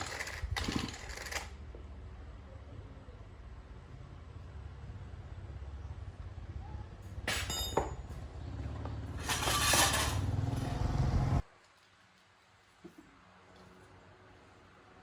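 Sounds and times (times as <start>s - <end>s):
small engine running: 0.0s - 1.6s
rattling: 9.1s - 10.8s.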